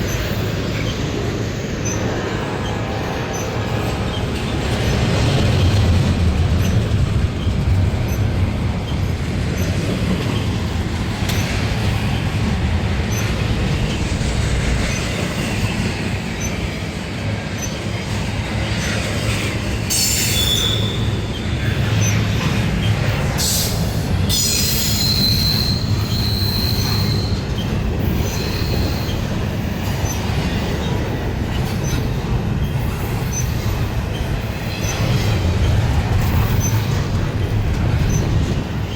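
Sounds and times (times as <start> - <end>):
freight train wheels rumbling: 0.0 - 38.9
high wheel squeals: 19.9 - 22.3, 22.9 - 29.3.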